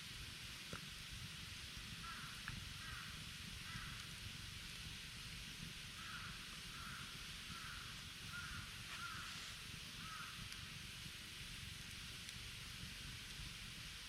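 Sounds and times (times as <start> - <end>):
steady outdoor hiss: 0.0 - 14.0
campfire snaps: 0.2 - 14.0
crow cawing: 2.0 - 4.0, 6.0 - 10.4.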